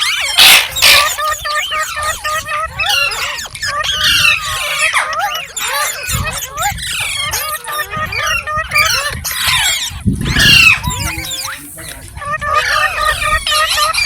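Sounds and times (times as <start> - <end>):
parakeet chattering: 0.0 - 14.0.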